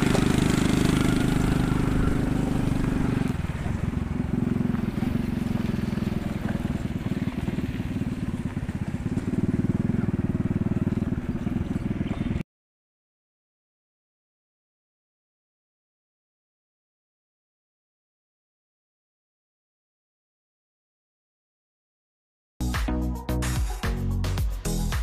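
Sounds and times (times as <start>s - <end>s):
vehicle engine pulsing drone: 0.0s - 12.4s.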